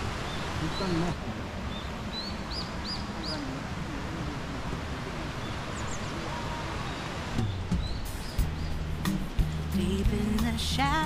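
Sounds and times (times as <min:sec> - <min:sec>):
steady outdoor hiss: 0:00.0 - 0:11.0
background music: 0:07.8 - 0:11.0.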